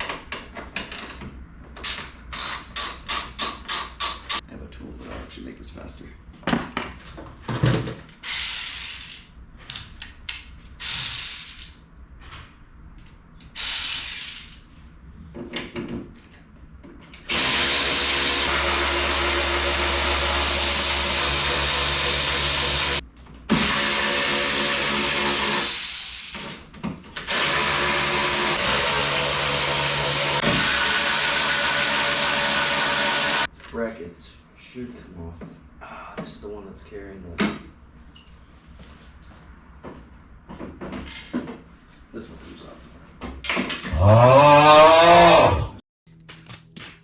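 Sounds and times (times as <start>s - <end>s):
cordless power tool spinning: 17.2s - 26.3s, 27.3s - 33.5s.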